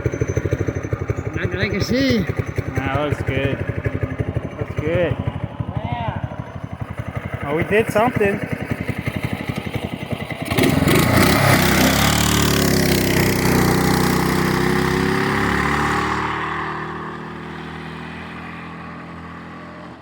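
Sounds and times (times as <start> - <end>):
trike engine revving: 0.0 - 20.0.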